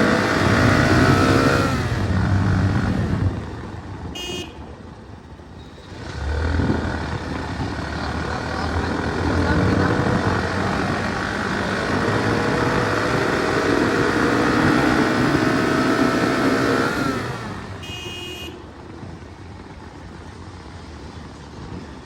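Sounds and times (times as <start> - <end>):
motorcycle engine accelerating: 0.0 - 3.8, 5.9 - 18.0.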